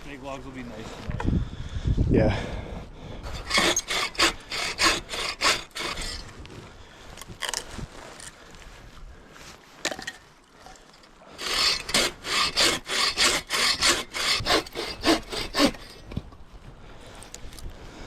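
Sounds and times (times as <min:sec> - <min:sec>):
hand saw cutting log: 0:03.2 - 0:06.4, 0:11.4 - 0:16.2.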